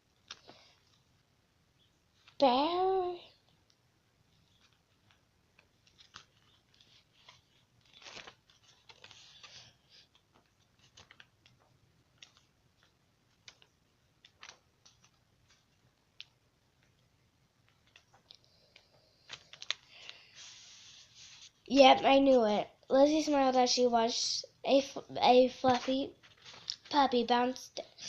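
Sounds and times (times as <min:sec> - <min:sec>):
book pages rustling and flipping: 0:00.1 - 0:01.3, 0:04.3 - 0:17.0, 0:17.6 - 0:22.6, 0:24.9 - 0:27.7.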